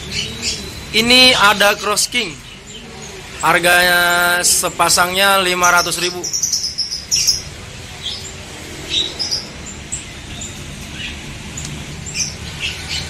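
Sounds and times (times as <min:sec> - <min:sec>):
low background noise: 0:00.0 - 0:13.0
small birds chirping: 0:00.0 - 0:13.0.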